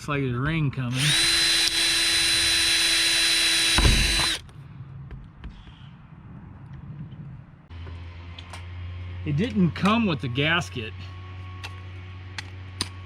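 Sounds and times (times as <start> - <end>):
power drill drilling: 0.9 - 4.4.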